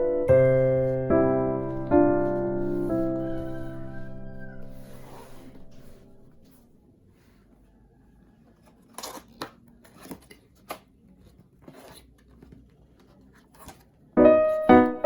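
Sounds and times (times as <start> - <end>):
piano music: 0.0 - 6.4, 14.2 - 15.0
scraping and clicking on packaging: 8.4 - 14.1.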